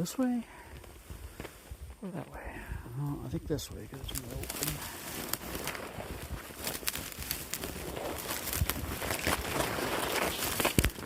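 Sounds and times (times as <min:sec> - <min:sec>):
twigs crackling underfoot: 0:00.0 - 0:11.0
footsteps crunching through brush: 0:03.9 - 0:11.0.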